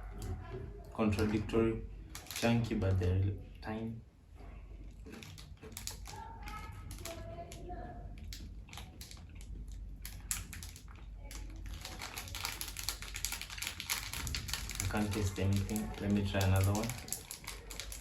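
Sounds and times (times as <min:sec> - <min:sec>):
cookie crunching while chewed: 0:04.8 - 0:18.0.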